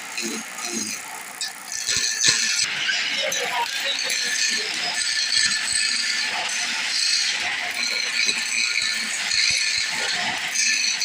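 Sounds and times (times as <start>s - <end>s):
lathe tool scraping wood: 0.0s - 11.0s.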